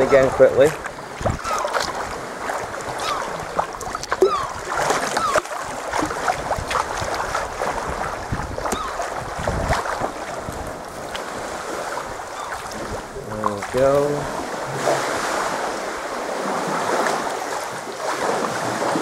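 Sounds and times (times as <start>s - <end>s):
sharp clicks and plinks of water: 0.0s - 2.1s, 2.8s - 11.3s
paddle blades in water: 0.0s - 19.0s
water splashing against kayak hull: 0.0s - 19.0s.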